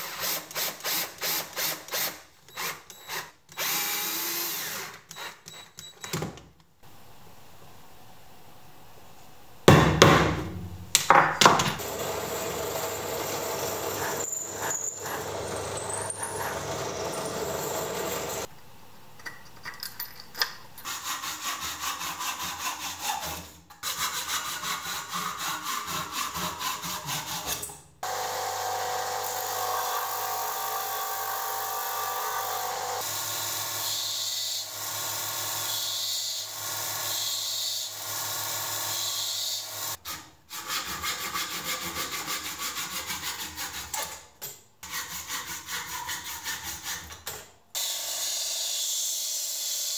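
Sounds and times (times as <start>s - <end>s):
loud knocks on wood: 9.7s - 11.7s
hand-sawing wood: 11.8s - 18.5s, 20.9s - 33.1s, 40.1s - 44.1s, 44.8s - 47.3s.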